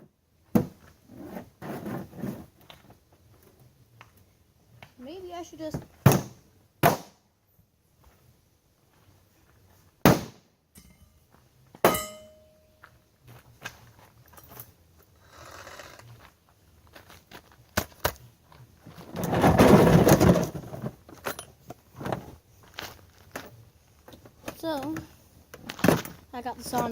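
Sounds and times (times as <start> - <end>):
metallic ring: 10.7 - 12.9.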